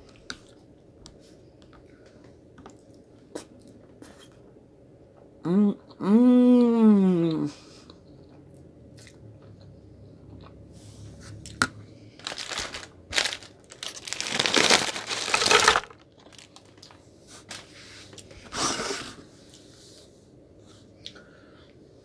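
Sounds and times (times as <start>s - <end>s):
food packaging crinkling: 12.2s - 17.8s.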